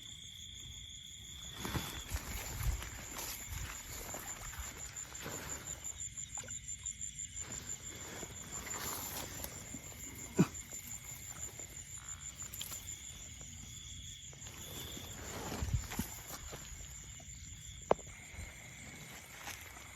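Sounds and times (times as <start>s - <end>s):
insects trilling: 0.0s - 19.9s
rustling and scuffing: 1.4s - 5.8s, 14.3s - 19.9s.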